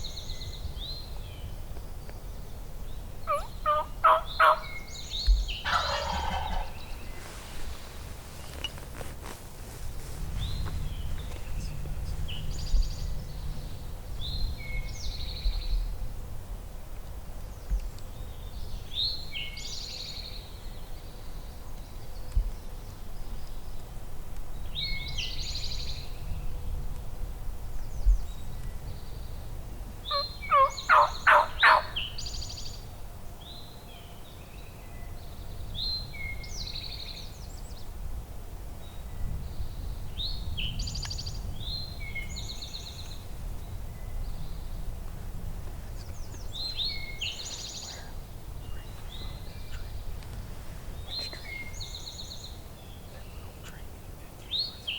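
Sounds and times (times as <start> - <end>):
songbird singing: 0.0 - 54.9
turkey gobbling: 3.3 - 4.8, 5.6 - 6.8, 30.1 - 32.0.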